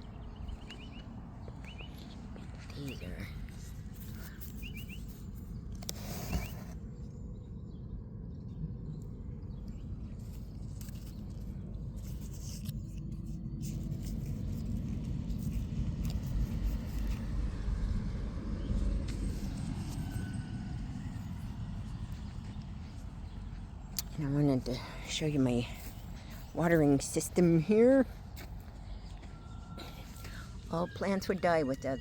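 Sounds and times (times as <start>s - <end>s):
low rumble: 6.8s - 26.6s.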